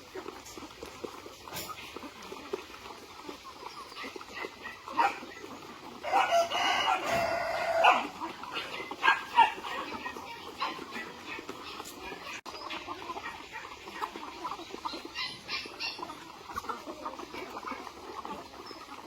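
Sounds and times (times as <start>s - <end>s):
chicken calls: 0.0s - 19.0s
rooster crowing: 6.0s - 8.1s.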